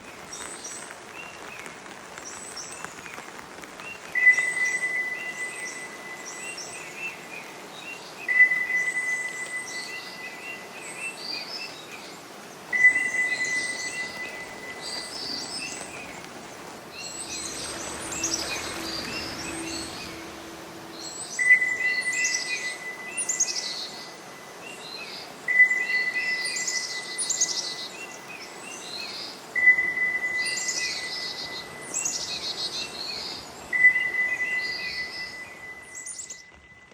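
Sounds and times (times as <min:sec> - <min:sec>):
soft hiss: 0:00.0 - 0:29.6
wild birds chirping: 0:10.0 - 0:26.1
high whistled note: 0:16.9 - 0:23.6.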